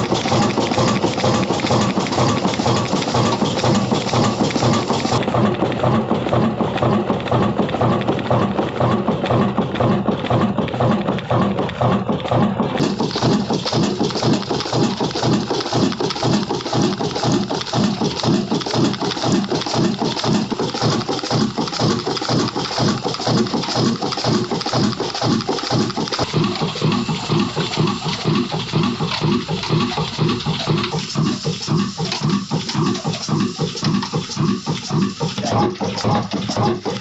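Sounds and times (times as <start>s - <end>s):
diesel engine running steadily: 0.0s - 37.0s.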